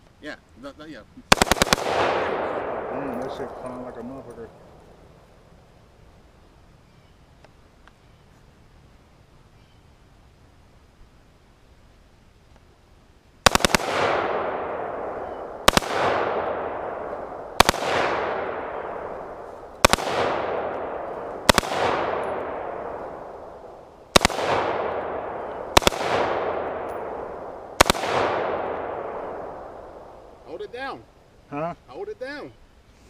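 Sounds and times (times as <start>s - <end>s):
rifle firing rapid bursts: 1.3s - 2.9s, 13.4s - 23.3s, 24.1s - 29.9s
gunshot echo: 1.3s - 4.9s, 13.5s - 31.0s.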